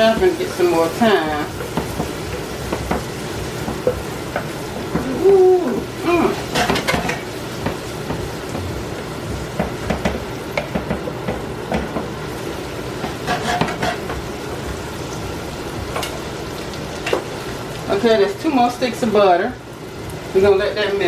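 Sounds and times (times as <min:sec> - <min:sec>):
vegetables sizzling in a frying pan: 0:00.0 - 0:21.0
utensil scraping and knocking pan: 0:06.4 - 0:08.6, 0:13.0 - 0:14.2.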